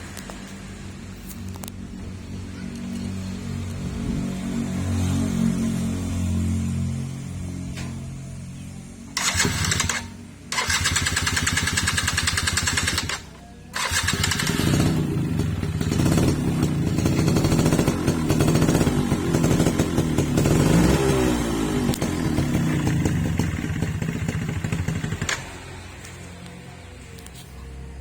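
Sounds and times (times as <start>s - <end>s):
motorcycle engine revving: 9.1s - 26.2s.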